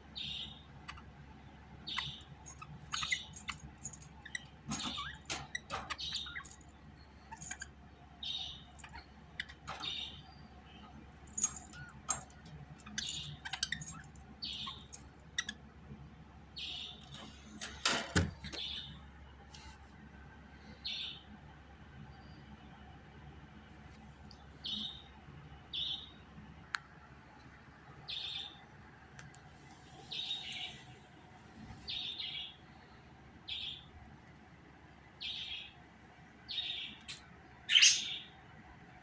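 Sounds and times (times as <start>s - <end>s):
budgerigar chirping: 1.8s - 6.6s, 7.2s - 15.6s, 36.5s - 38.4s.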